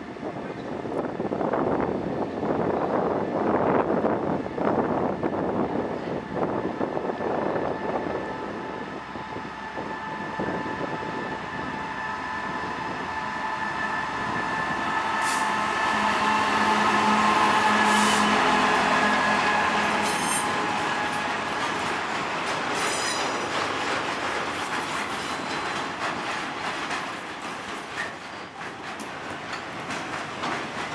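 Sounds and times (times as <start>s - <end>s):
diesel locomotive engine: 0.0s - 30.9s
faint wheel squeal on rails: 9.4s - 21.7s, 22.7s - 23.8s, 24.5s - 25.9s.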